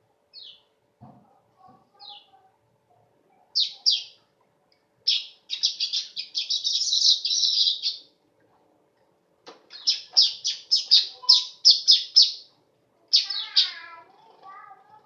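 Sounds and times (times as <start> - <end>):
weaver bird singing: 0.3 - 0.7, 3.6 - 4.2, 5.1 - 8.1, 9.7 - 12.5, 13.1 - 13.8.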